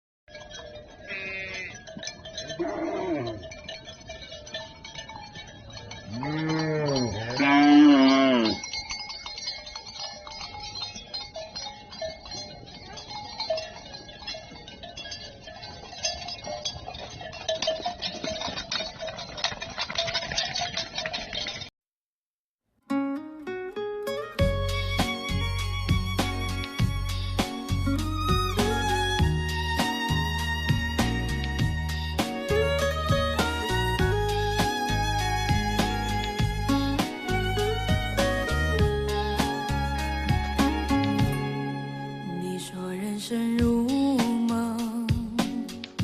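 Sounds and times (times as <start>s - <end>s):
cowbells clanking: 0.3s - 21.7s, 24.4s - 42.4s
cattle mooing: 1.1s - 1.8s, 2.5s - 3.5s, 6.1s - 8.6s.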